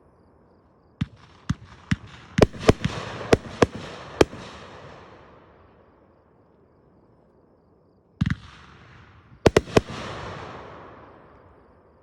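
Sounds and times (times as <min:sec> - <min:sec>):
fireworks bangs: 0:01.0 - 0:05.4, 0:08.2 - 0:11.6.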